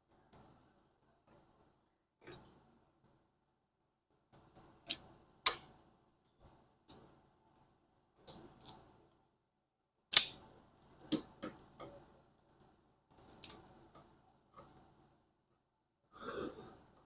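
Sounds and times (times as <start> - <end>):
hand tools and metal fasteners clicking: 10.1 - 13.9.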